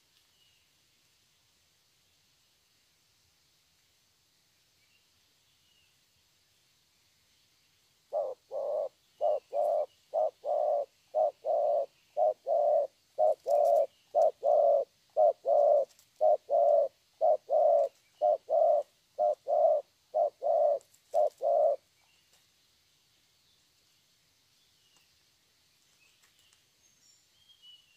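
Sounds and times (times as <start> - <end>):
dove cooing: 8.1 - 21.8.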